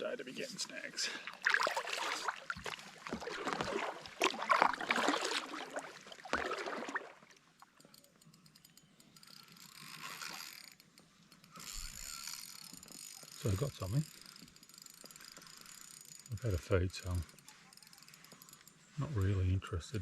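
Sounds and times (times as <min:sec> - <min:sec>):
fishing reel clicking: 0:07.6 - 0:19.5.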